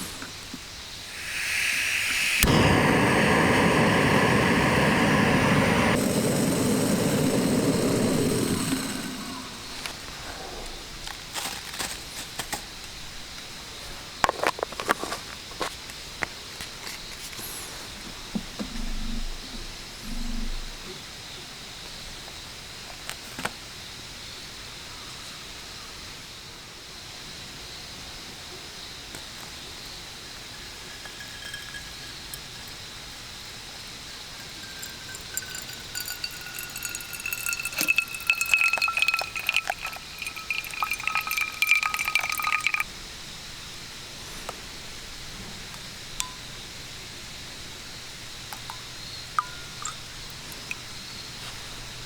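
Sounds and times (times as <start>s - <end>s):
outdoor background hiss: 0.0s - 52.0s
cup clinking: 1.1s - 10.1s, 30.2s - 42.9s, 48.5s - 51.6s
liquid pouring into a cup: 1.1s - 10.2s, 30.4s - 32.8s, 34.1s - 42.9s, 48.6s - 51.6s.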